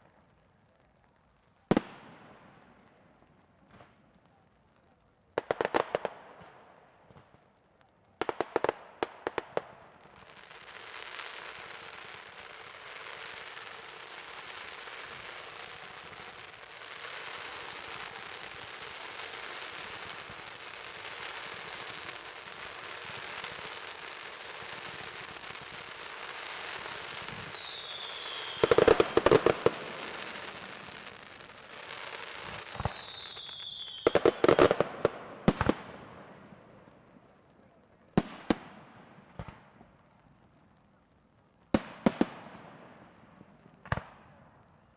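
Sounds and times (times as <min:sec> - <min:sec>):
firework crackling: 0:00.0 - 0:44.9
falling firework whistle: 0:26.3 - 0:31.2, 0:31.9 - 0:35.8.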